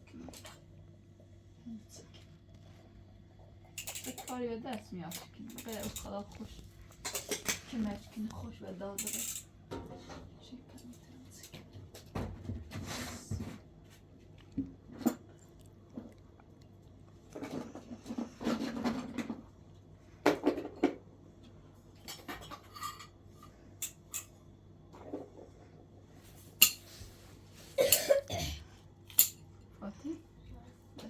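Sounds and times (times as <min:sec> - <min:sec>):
dishes and cutlery clinking: 0:03.8 - 0:04.4, 0:05.1 - 0:07.8, 0:08.9 - 0:10.3, 0:22.0 - 0:24.4, 0:26.6 - 0:27.0, 0:29.1 - 0:29.5.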